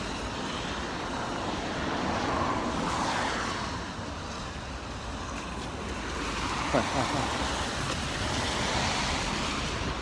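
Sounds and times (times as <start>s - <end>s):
outdoor noise: 0.0s - 10.0s.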